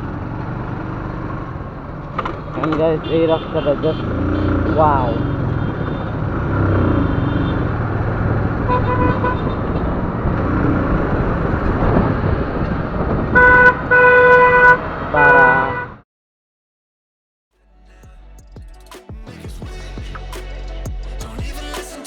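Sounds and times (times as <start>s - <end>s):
motorcycle road and wind noise: 0.0s - 16.0s
vehicle horn honking: 2.6s - 7.9s, 8.5s - 10.2s, 13.3s - 16.0s.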